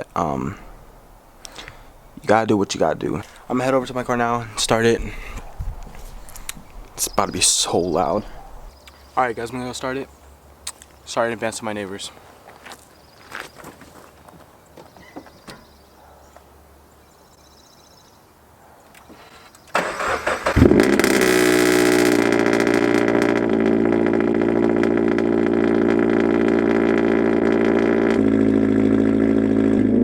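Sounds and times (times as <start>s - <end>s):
starter motor cranking: 19.8s - 23.5s
car engine idling loudly: 19.8s - 29.0s.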